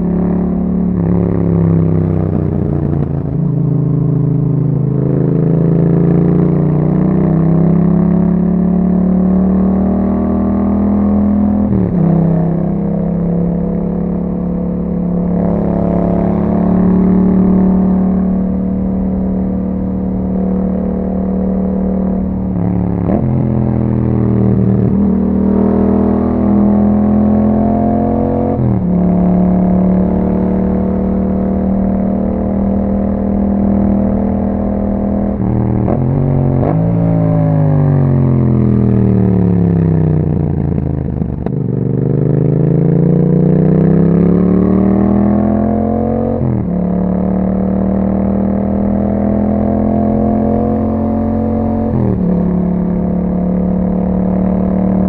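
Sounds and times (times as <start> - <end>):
motorcycle engine running: 11.1 - 27.8.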